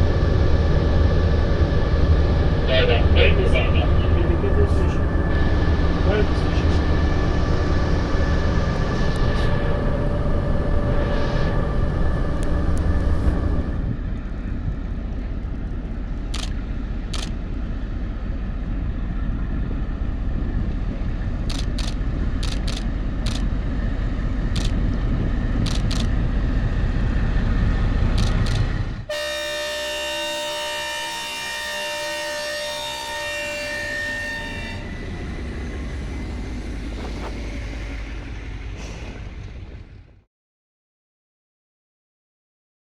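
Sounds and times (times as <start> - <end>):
train rumbling: 0.0 - 40.3
sharp clicks: 16.3 - 17.4, 21.5 - 23.5, 24.5 - 24.9, 25.6 - 26.1, 28.2 - 28.7.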